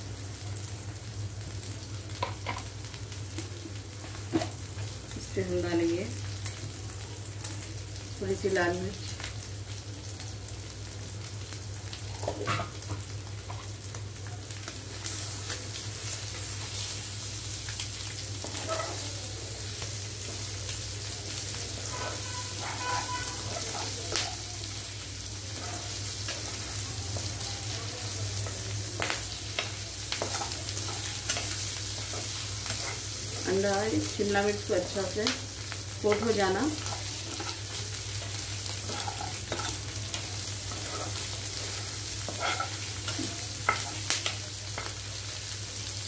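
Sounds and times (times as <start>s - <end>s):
food sizzling in a frying pan: 0.0s - 46.0s
steel spoon scraping a pan: 21.8s - 24.0s, 36.1s - 44.1s.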